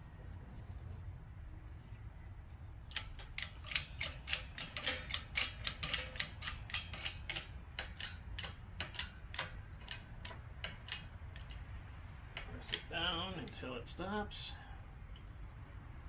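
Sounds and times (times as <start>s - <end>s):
ratcheting hand tool clicking: 2.9s - 11.6s, 12.4s - 12.9s.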